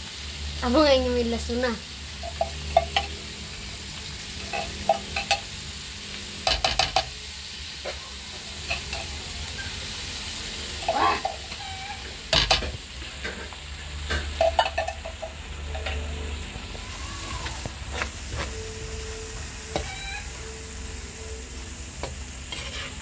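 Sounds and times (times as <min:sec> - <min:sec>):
food sizzling in a wok: 0:00.0 - 0:23.0
spoon scraping and knocking pan: 0:02.2 - 0:03.2, 0:04.4 - 0:05.6, 0:06.4 - 0:07.2, 0:10.8 - 0:16.0, 0:19.7 - 0:20.2, 0:22.0 - 0:23.0.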